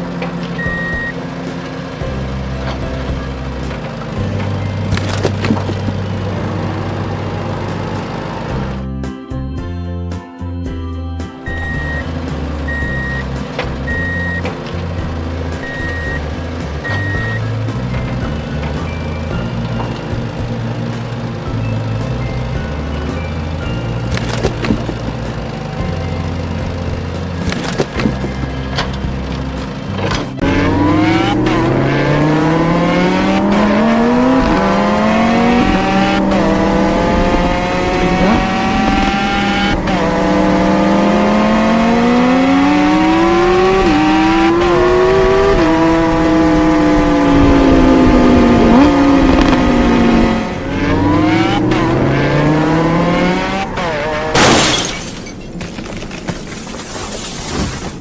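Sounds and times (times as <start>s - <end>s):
engine revving: 24.1s - 56.1s.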